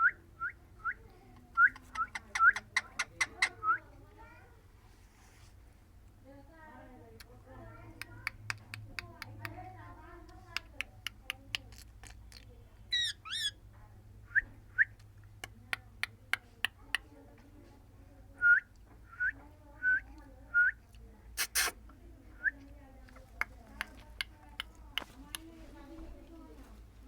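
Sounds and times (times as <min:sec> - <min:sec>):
parrot squawk: 0:12.9 - 0:13.6
parrot whistling: 0:12.9 - 0:13.6.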